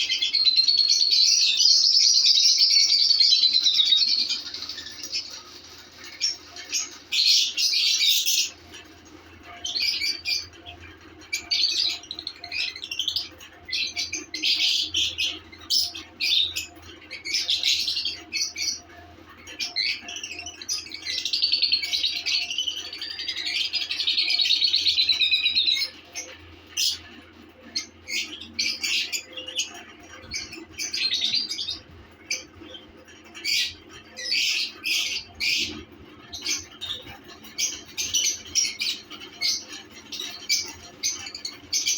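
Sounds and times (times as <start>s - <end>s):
lovebirds chirping and chattering: 0.0s - 41.9s.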